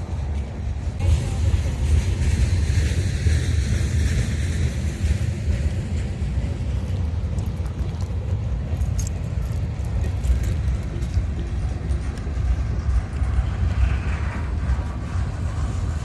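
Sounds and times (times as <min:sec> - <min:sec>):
freight train rumbling past: 0:00.0 - 0:16.0
metallic clinks and rattles: 0:07.3 - 0:11.4.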